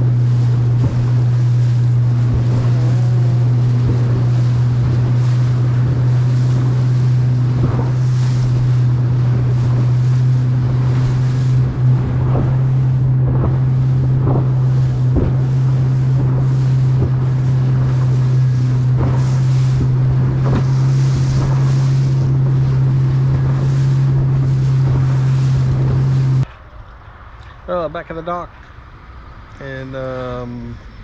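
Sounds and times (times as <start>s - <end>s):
wind buffeting microphone: 0.0s - 27.7s
boat engine droning: 0.0s - 31.0s
sharp knocks: 13.2s - 15.6s.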